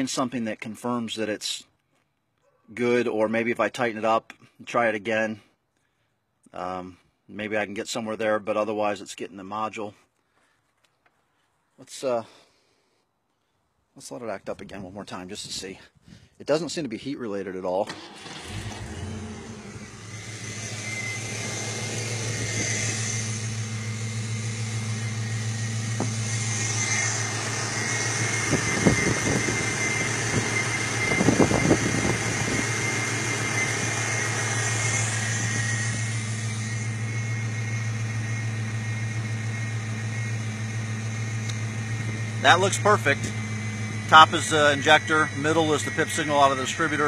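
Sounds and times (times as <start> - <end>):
car engine idling: 17.9 - 47.0.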